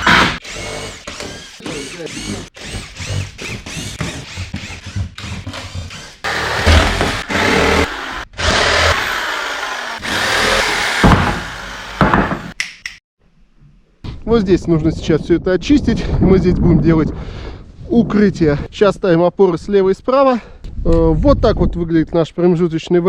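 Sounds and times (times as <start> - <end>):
power tool running: 0.0 - 12.6.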